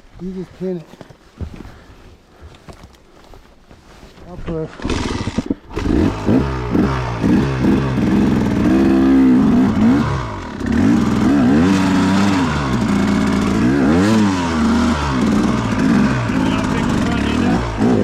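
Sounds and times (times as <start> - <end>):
dirt bike engine revving: 4.7 - 18.0.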